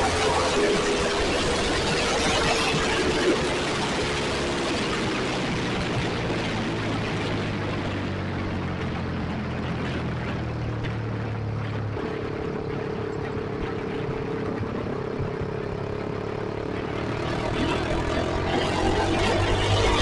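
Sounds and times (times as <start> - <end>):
motorcycle engine exhaust note: 9.4 - 20.0.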